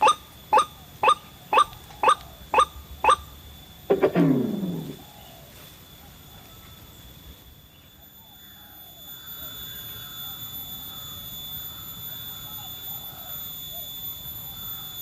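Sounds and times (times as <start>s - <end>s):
bird call with falling pitch: 0.0s - 3.3s, 3.9s - 5.4s
thin steady high tone: 0.0s - 15.0s.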